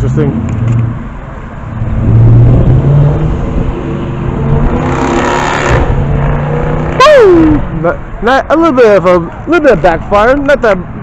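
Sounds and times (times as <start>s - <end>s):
car engine revving: 0.2s - 7.9s.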